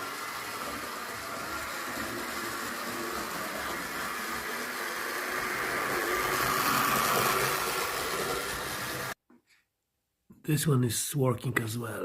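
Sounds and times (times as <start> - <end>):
model train motor whirring: 0.0 - 9.2.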